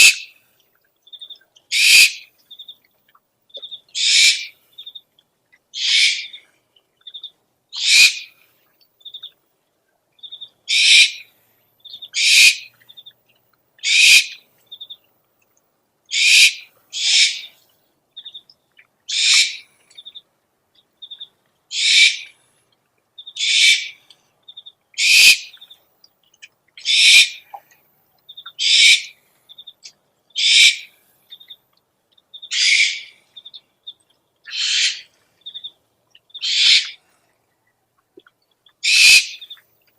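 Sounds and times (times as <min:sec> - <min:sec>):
recorded owl calls: 0:00.0 - 0:00.3, 0:01.7 - 0:02.3, 0:03.9 - 0:04.6, 0:05.7 - 0:06.5, 0:07.1 - 0:08.4, 0:10.7 - 0:11.3, 0:12.0 - 0:12.8, 0:13.8 - 0:14.4, 0:16.1 - 0:17.6, 0:19.1 - 0:19.7, 0:21.0 - 0:22.4, 0:23.2 - 0:24.0, 0:25.0 - 0:25.7, 0:26.8 - 0:27.7, 0:28.4 - 0:29.2, 0:29.8 - 0:31.0, 0:32.4 - 0:33.3, 0:34.4 - 0:35.7, 0:36.3 - 0:37.0, 0:38.8 - 0:39.6.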